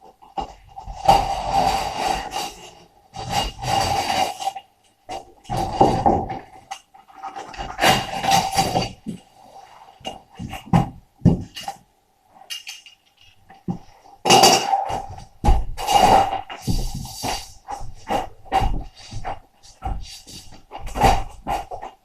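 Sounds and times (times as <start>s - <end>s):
hand tool scraping: 0.4s - 11.8s, 12.5s - 22.0s.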